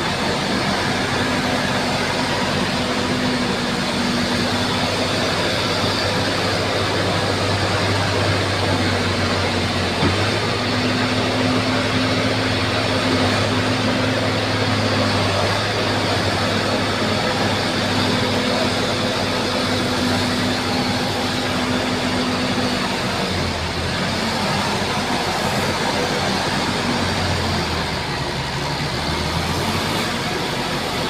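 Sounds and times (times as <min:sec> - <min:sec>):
bulldozer diesel engine running: 0:00.0 - 0:31.0.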